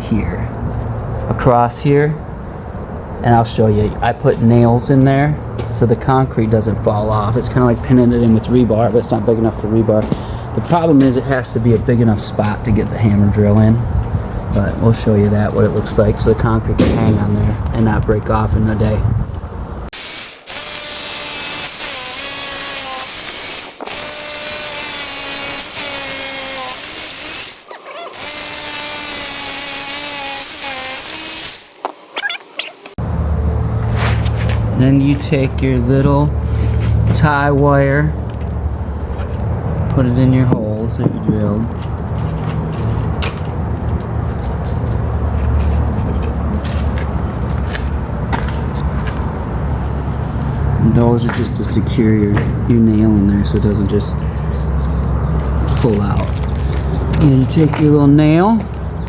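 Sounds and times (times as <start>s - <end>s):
steady low rumble: 11.5s - 19.9s
hammer drill drilling into concrete: 20.2s - 31.8s.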